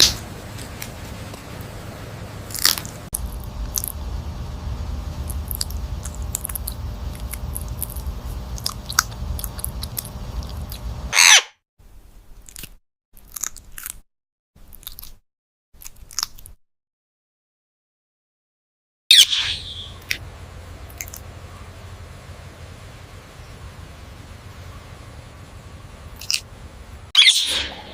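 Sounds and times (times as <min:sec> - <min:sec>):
parrot crunching food: 0:02.4 - 0:11.3, 0:12.4 - 0:14.0, 0:14.6 - 0:15.2, 0:15.8 - 0:16.6, 0:20.0 - 0:21.4, 0:26.1 - 0:26.6
parrot screech: 0:11.1 - 0:11.5, 0:19.1 - 0:20.0, 0:27.2 - 0:27.9.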